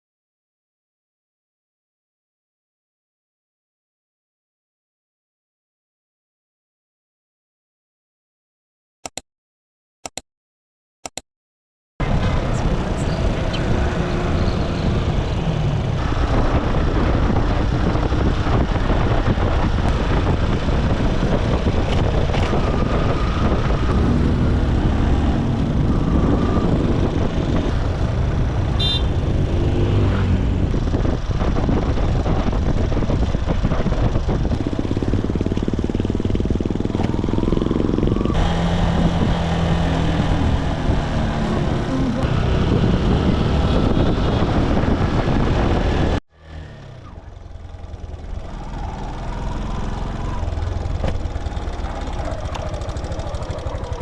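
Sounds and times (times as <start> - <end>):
motorcycle engine running: 12.0 - 54.0
road noise: 12.0 - 54.0.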